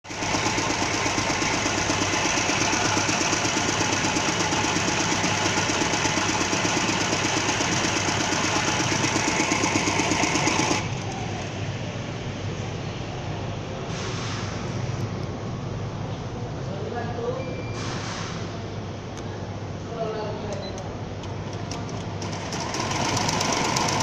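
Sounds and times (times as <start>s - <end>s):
embroidery machine stitching: 0.0s - 11.5s, 21.5s - 24.0s.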